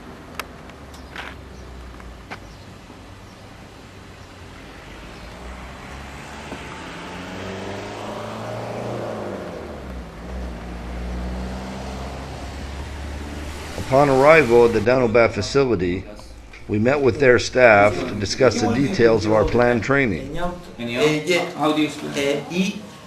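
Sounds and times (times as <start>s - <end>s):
car engine revving: 4.0s - 21.0s.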